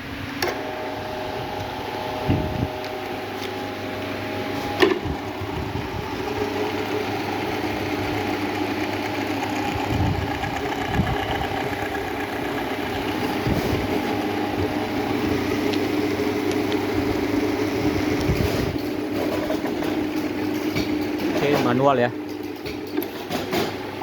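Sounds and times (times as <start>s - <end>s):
motorcycle engine idling: 5.0s - 15.3s.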